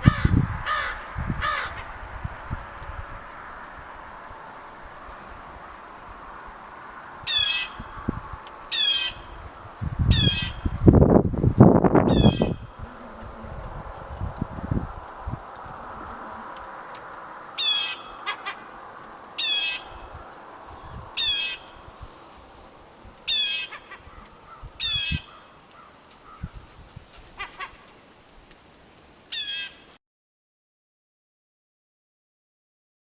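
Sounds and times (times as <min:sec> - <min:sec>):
gulls calling: 0:00.0 - 0:02.0, 0:07.2 - 0:10.8, 0:12.0 - 0:26.5, 0:27.3 - 0:28.0.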